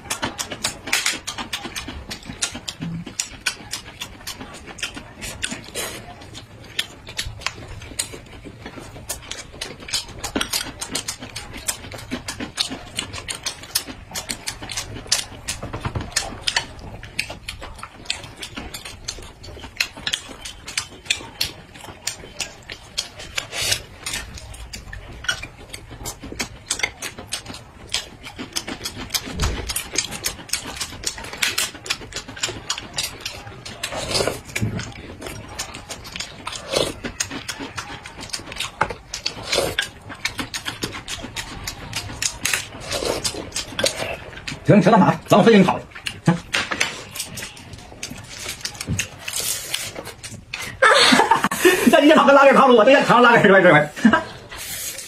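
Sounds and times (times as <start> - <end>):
crunchy chewing: 0.0 - 52.6.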